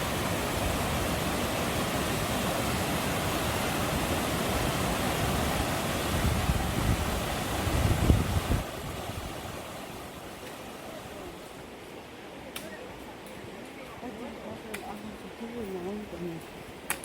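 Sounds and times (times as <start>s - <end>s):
stream water rushing over rocks: 0.0s - 17.0s
wind buffeting microphone: 4.0s - 9.7s.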